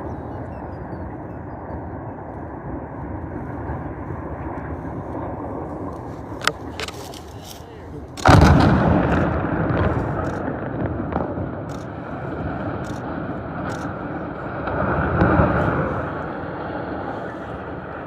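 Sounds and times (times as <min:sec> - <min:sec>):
sharp cracks: 0:05.9 - 0:14.1
loud explosion blast: 0:08.2 - 0:18.0
rumble of structure collapsing: 0:08.2 - 0:18.0.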